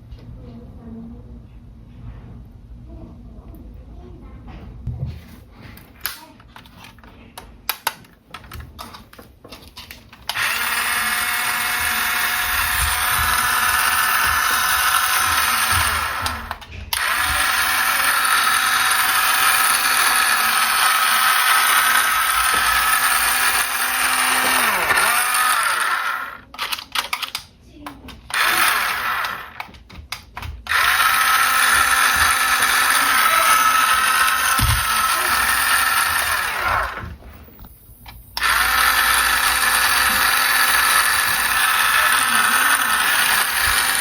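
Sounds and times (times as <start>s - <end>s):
toy car electric motor whine: 10.3s - 26.7s, 28.3s - 29.7s, 30.7s - 37.2s, 38.4s - 44.0s.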